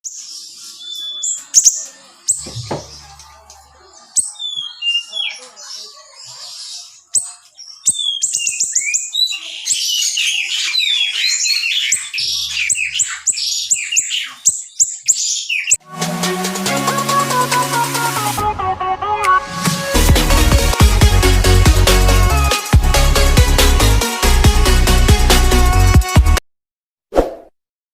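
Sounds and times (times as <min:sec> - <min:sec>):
songbird chirping: 0:00.0 - 0:15.8
electronic music: 0:15.8 - 0:26.4.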